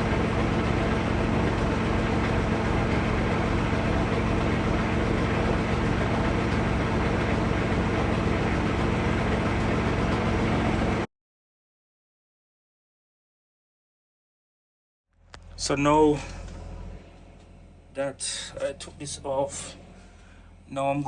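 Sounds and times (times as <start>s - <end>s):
engine idling: 0.0s - 11.1s, 15.2s - 21.0s.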